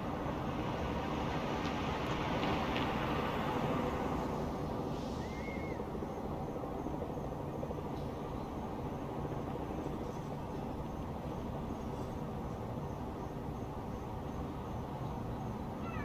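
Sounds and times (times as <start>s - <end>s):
faint high insect calls: 4.2s - 16.0s.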